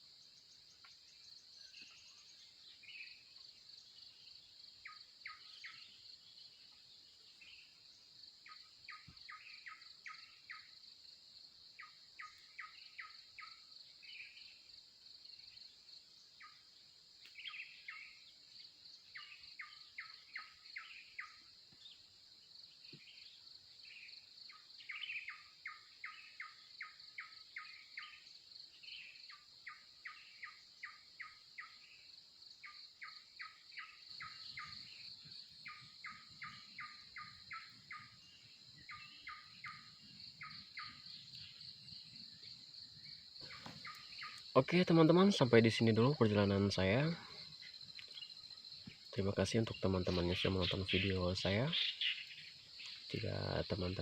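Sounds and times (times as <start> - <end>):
high insect chorus: 0.0 - 54.0
single bird chirps: 42.4 - 45.1.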